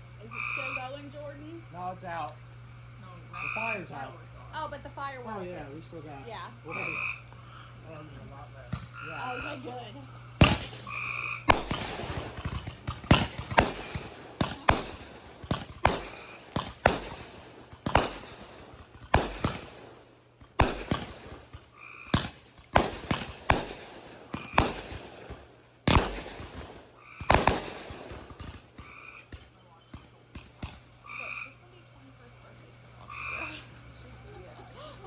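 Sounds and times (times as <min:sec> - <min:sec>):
fireworks bangs: 0:07.9 - 0:31.5.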